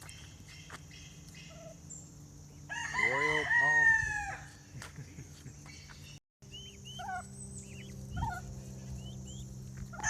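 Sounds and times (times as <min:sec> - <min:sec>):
steady low hum: 0:00.0 - 0:10.0
turkey yelping and clucking: 0:01.3 - 0:01.8, 0:06.6 - 0:10.0.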